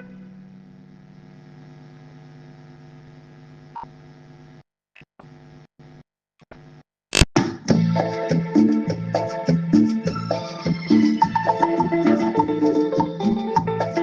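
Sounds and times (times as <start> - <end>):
tape hiss: 0.0 - 4.6
electrical hum: 0.0 - 7.3.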